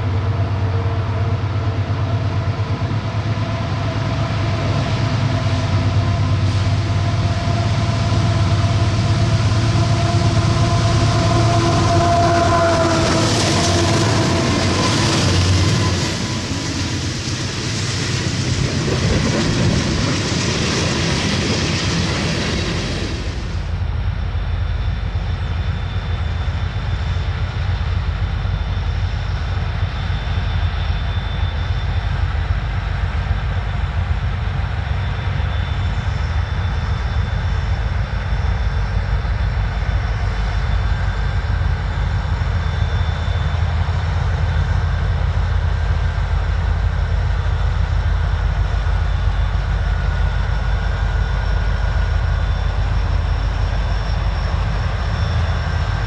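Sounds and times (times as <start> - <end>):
low engine drone: 0.0 - 56.0
train wheel and rail noise: 0.0 - 56.0
faint high whine: 20.5 - 56.0.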